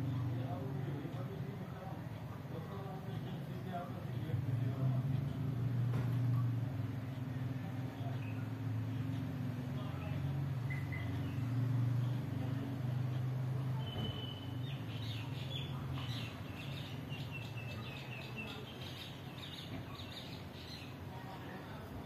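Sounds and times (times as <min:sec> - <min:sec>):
small birds chirping: 0:09.8 - 0:21.6.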